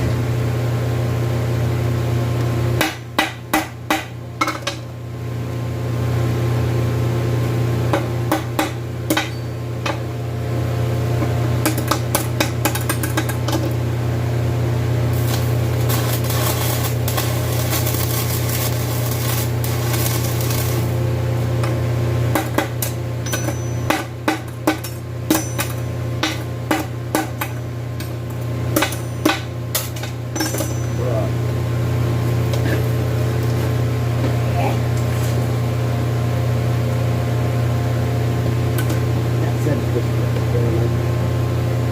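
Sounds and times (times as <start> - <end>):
steady low hum: 0.0 - 41.9
hammer striking metal: 8.0 - 10.0, 21.6 - 31.0.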